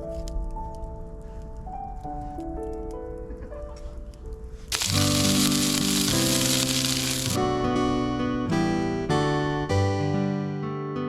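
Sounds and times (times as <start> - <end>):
hiss: 4.7 - 7.4.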